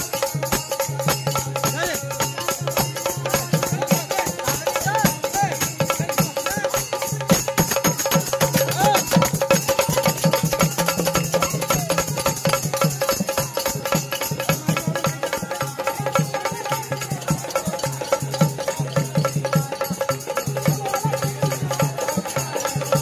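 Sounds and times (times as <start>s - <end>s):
fast drum rhythm: 0.0s - 23.0s
jingling rattling percussion: 0.0s - 23.0s.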